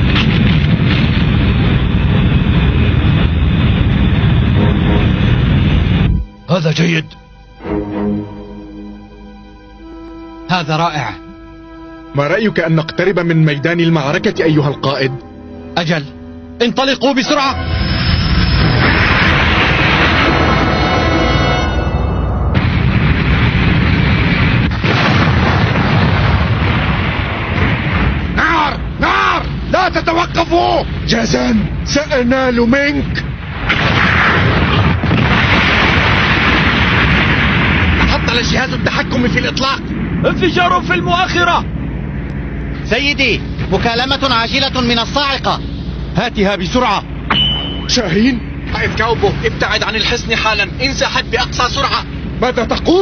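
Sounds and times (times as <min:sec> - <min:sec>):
explosions and cannon blasts: 0:00.0 - 0:06.1, 0:17.8 - 0:29.7, 0:33.2 - 0:41.4
spacecraft engine rumble: 0:00.0 - 0:09.9, 0:12.0 - 0:33.7, 0:34.4 - 0:53.0.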